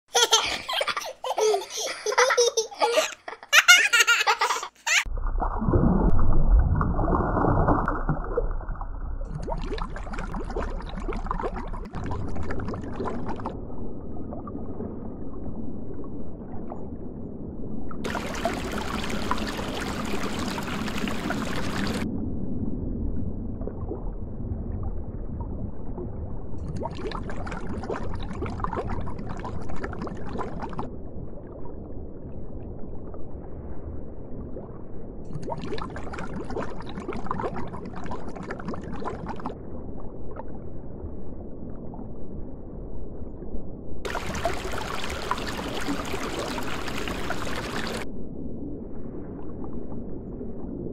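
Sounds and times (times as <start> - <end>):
water rushing and gurgling: 3.8 - 22.1, 44.0 - 50.9.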